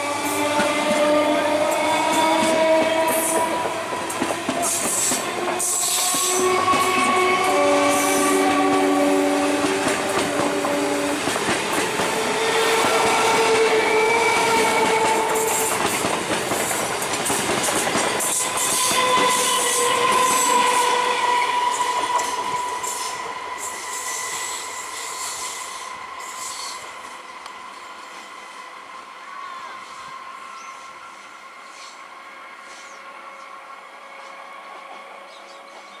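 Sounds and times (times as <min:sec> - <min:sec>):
train horn: 0:00.0 - 0:16.2, 0:18.1 - 0:36.0
train rail clatter: 0:00.1 - 0:27.0.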